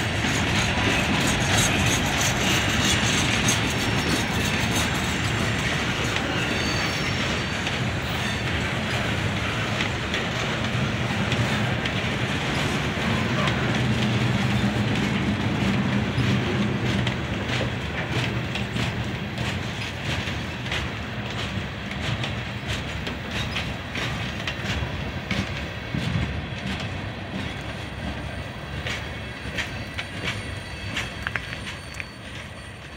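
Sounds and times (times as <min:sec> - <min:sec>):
freight train rumbling past: 0:00.0 - 0:32.9
wheels clicking over rail joints: 0:00.0 - 0:32.9.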